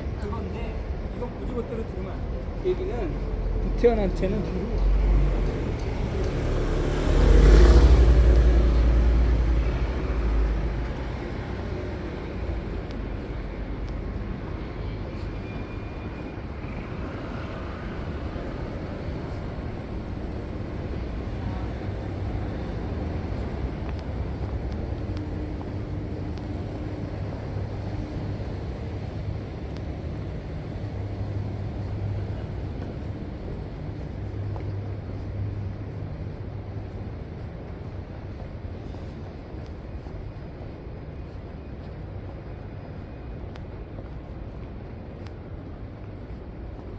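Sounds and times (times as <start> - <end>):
traffic rumble: 0.0 - 46.9
vehicle passing close: 4.8 - 11.8.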